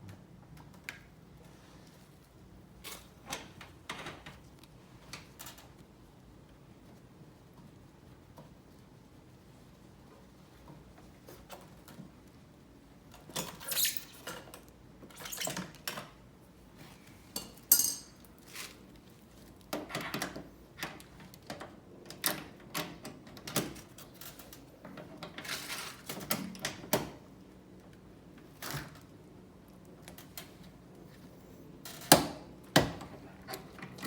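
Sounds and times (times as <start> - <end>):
metal tools clinking: 17.4 - 18.2.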